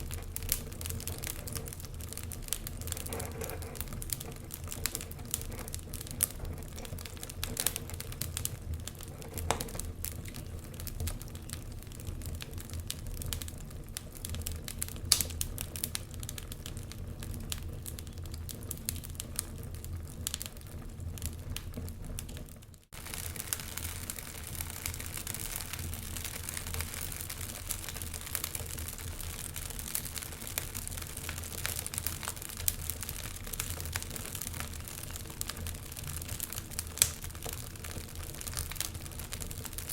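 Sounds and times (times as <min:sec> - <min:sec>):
low fire rumble: 0:00.0 - 0:39.9
wood fire crackling and popping: 0:00.0 - 0:39.9
fire hiss: 0:22.9 - 0:39.9.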